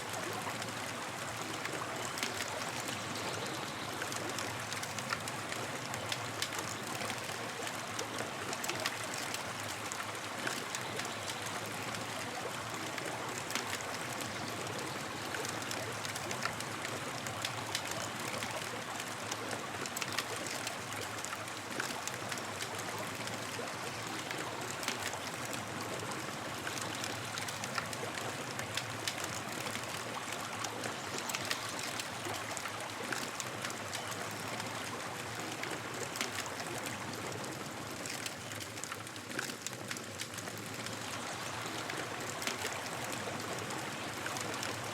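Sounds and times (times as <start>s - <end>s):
campfire crackling and popping: 24.2s - 44.9s.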